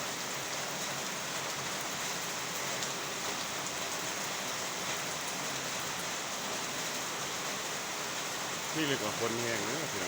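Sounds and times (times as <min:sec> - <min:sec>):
heavy rain pattering on water: 0:00.0 - 0:10.0.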